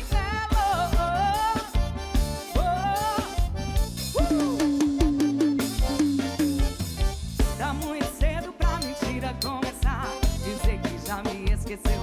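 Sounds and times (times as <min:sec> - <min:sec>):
person singing: 0:00.0 - 0:03.5, 0:04.1 - 0:06.5, 0:07.4 - 0:12.0
bass line: 0:00.0 - 0:12.0
drum kit beat: 0:00.0 - 0:12.0
short repeated notes: 0:01.8 - 0:10.6.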